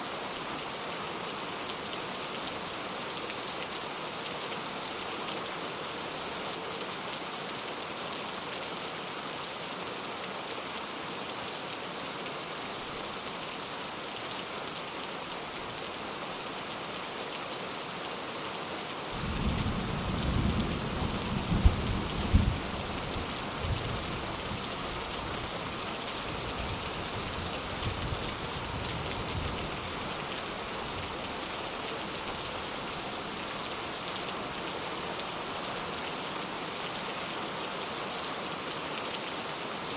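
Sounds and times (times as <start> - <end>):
steady rain falling: 0.0 - 39.9
thunder rumbling and cracking: 19.2 - 22.7.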